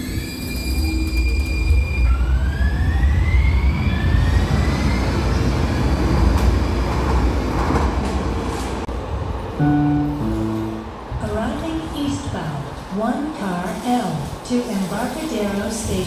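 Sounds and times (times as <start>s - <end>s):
train low rumble: 3.9s - 16.0s.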